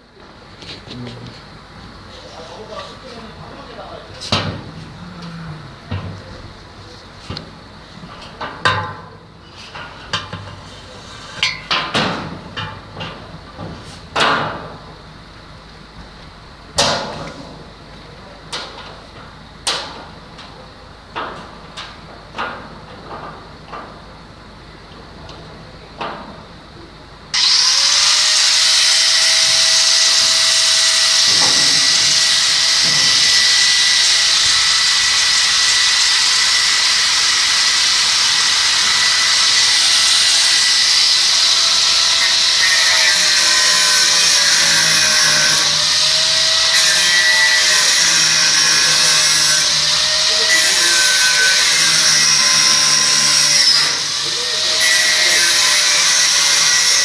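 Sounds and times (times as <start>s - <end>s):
angle grinder whining on steel: 27.3s - 57.0s.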